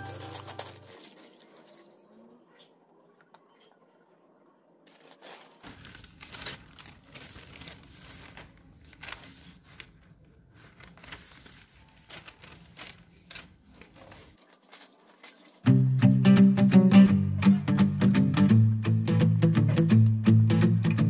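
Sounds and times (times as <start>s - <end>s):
newspaper crinkling and tearing: 0.0s - 1.4s, 4.9s - 15.7s.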